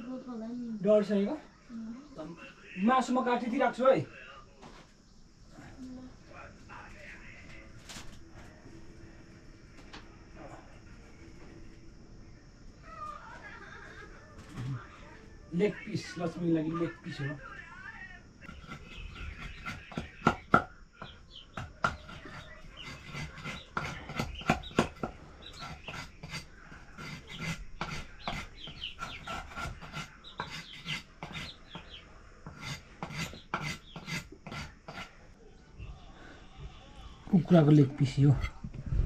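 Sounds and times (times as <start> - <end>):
knife scraping board: 18.5 - 20.3, 21.8 - 35.2
knife chopping on wooden board: 18.5 - 26.4.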